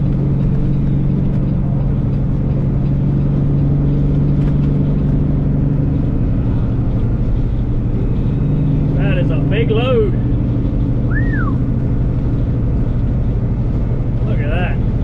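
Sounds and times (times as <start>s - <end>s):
diesel engine droning: 0.0s - 15.0s
low road rumble: 0.0s - 15.0s.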